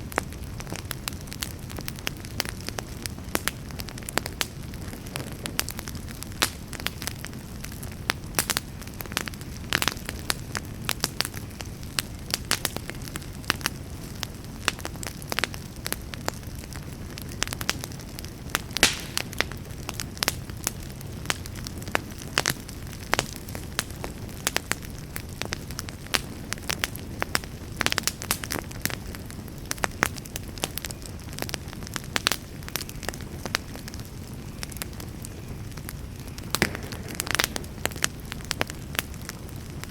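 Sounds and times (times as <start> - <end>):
campfire pops and crackles: 0.0 - 39.9
flames rumbling: 0.0 - 39.9.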